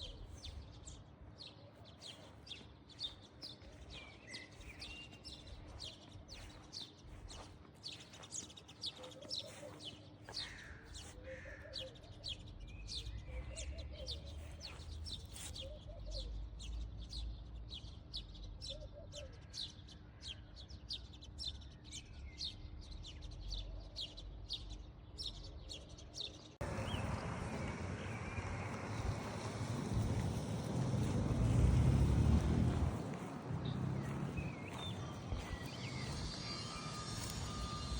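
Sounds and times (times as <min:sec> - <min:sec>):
small birds chirping: 0:00.0 - 0:37.9
lower warbling bird calls: 0:08.9 - 0:16.8.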